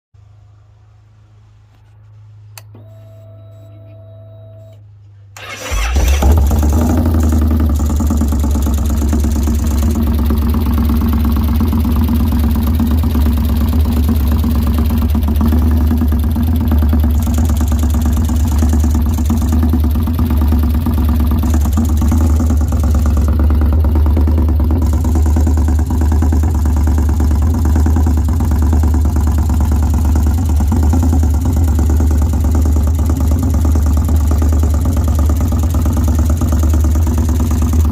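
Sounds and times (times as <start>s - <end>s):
motorcycle engine starting and idling: 4.6s - 37.9s
engine knock: 5.4s - 37.9s.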